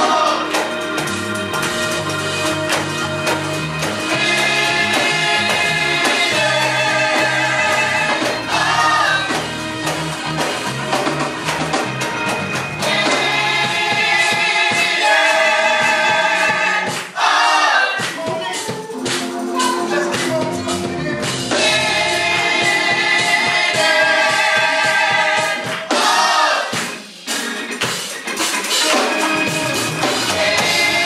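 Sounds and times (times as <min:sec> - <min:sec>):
voices singing together: 0:00.0 - 0:01.1, 0:03.8 - 0:10.0, 0:12.8 - 0:27.1, 0:28.8 - 0:31.0
bass line: 0:00.0 - 0:14.8, 0:18.6 - 0:25.5
instrumental accompaniment: 0:00.0 - 0:31.0.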